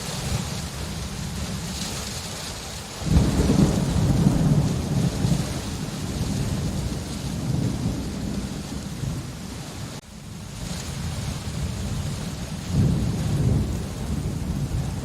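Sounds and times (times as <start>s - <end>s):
steady rain: 0.0s - 15.0s
thunder rolling: 3.0s - 15.0s.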